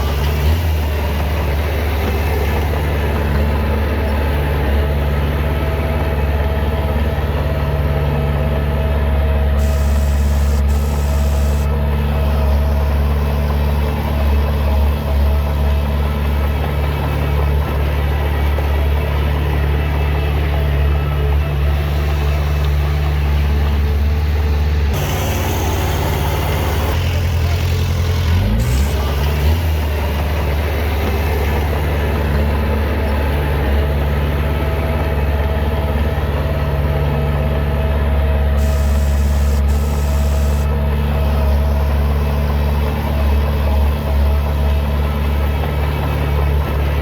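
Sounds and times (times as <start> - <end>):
heavy diesel engine droning: 0.0 - 47.0
brief hiss: 9.6 - 11.7, 38.6 - 40.7.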